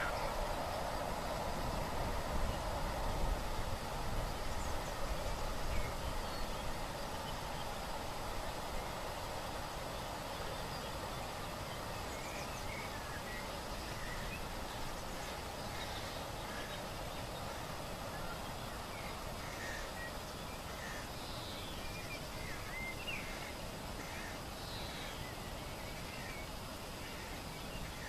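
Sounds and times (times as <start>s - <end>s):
small birds chirping: 0.0s - 1.8s
outdoor background rush: 0.0s - 28.0s.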